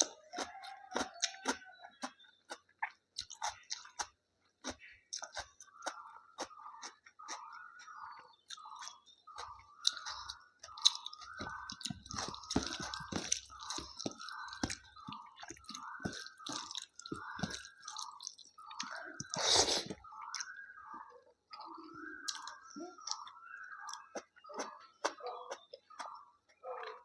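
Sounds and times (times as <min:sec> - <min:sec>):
person chewing food: 0:00.0 - 0:27.0
loud crunch: 0:11.0 - 0:18.2.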